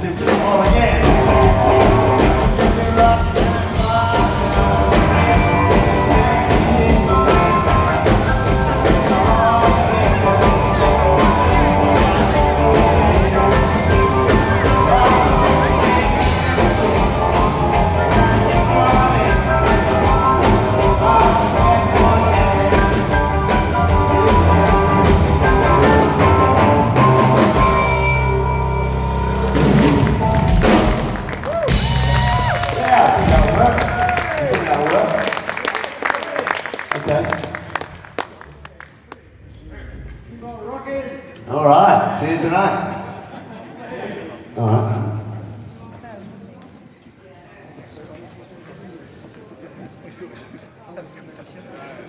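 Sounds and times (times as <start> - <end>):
bass: 0.0 - 35.1
drums: 0.0 - 35.7
electric guitar: 0.6 - 33.9.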